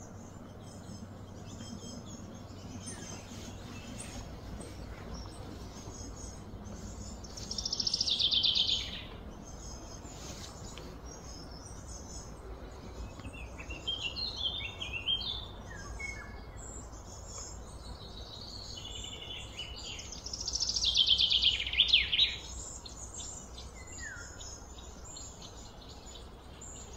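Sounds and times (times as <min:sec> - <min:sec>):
faint low hum: 0:00.0 - 0:21.4.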